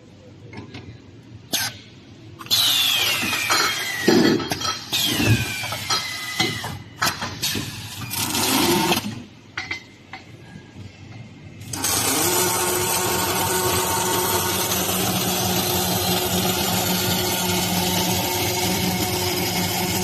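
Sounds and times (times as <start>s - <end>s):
mechanical hum: 0.0s - 20.0s
welding machine whine: 7.4s - 9.2s, 11.6s - 20.0s.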